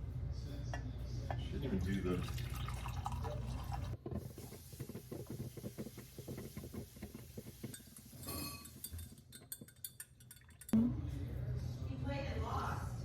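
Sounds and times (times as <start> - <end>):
glass and dishes clinking: 7.6 - 10.8.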